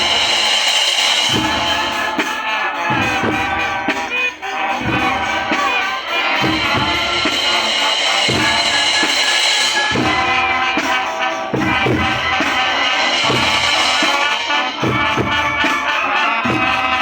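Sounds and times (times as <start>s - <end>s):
snare drum beats: 0.0s - 17.0s
wind instrument melody: 0.0s - 17.0s
bass drum beats: 4.8s - 17.0s.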